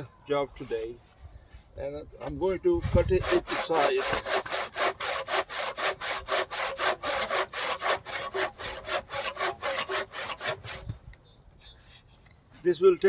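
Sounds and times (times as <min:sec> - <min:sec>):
hand saw cutting wood: 0:02.7 - 0:10.9.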